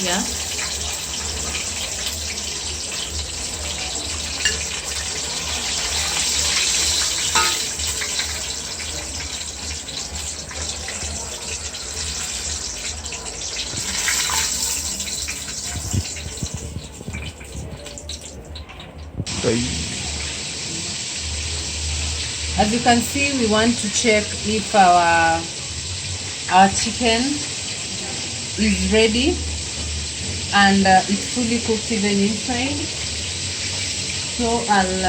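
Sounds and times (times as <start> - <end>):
chicken deep-frying in oil: 0.0 - 35.0.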